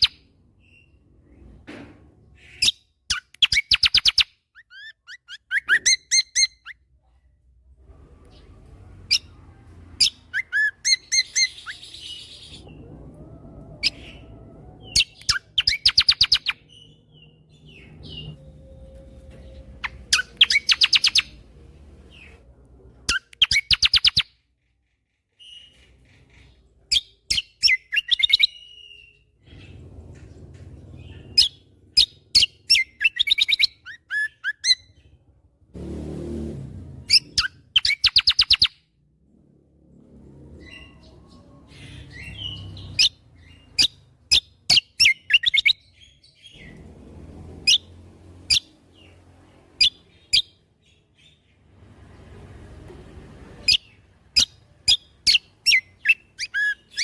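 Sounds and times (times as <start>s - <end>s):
bird whistles and warble: 0.0s - 1.6s, 2.3s - 6.9s, 8.3s - 21.5s, 22.1s - 24.4s, 25.3s - 29.8s, 31.0s - 35.2s, 37.0s - 38.8s, 40.5s - 46.8s, 47.6s - 47.9s, 49.8s - 51.4s, 53.6s - 57.0s.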